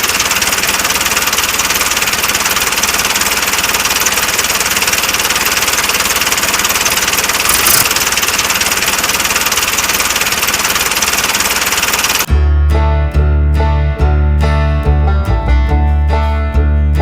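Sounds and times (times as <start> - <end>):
small engine chugging: 0.0 - 12.3.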